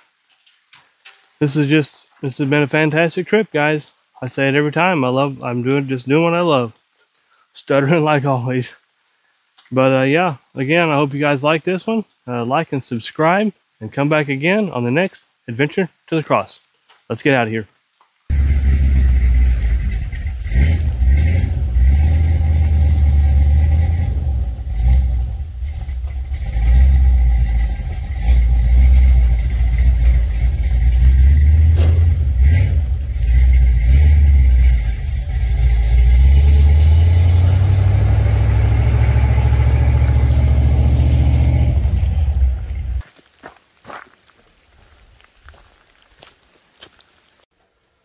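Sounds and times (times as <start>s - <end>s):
road rumble: 18.2s - 47.5s
pickup truck engine driving: 18.3s - 43.0s.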